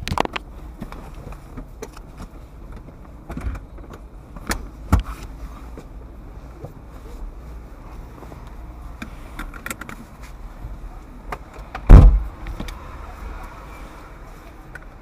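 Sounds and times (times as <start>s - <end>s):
car door shutting: 11.7s - 12.7s.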